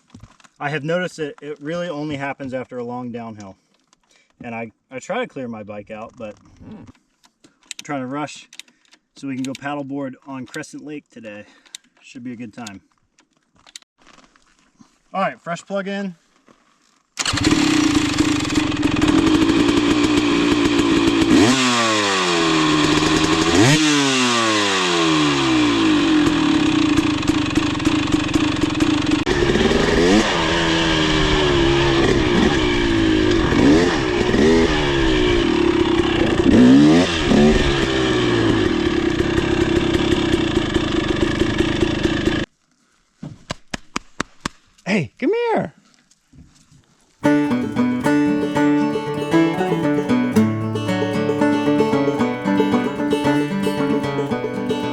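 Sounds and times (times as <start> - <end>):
two-stroke engine idling and revving: 17.2 - 42.4.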